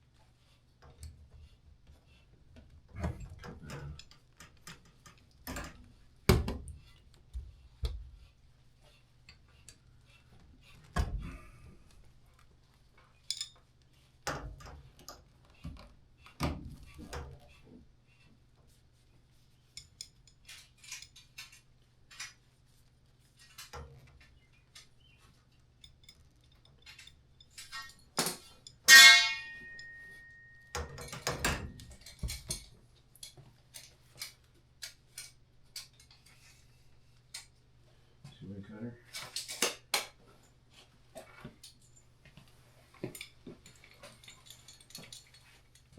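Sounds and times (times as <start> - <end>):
metal tools clinking: 13.2 - 13.6, 19.8 - 22.2, 25.8 - 33.4, 43.2 - 45.9
loud metallic clang: 28.9 - 30.0.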